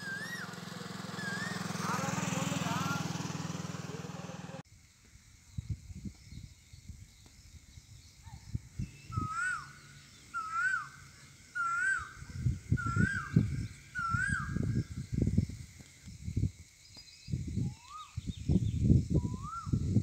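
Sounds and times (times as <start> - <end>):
bird calling: 0.0 - 4.6, 8.2 - 14.9
voices: 0.0 - 4.6.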